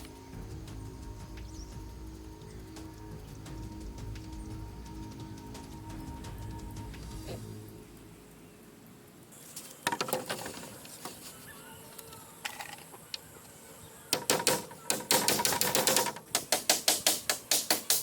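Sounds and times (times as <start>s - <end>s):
hand tools striking material: 14.1s - 18.0s.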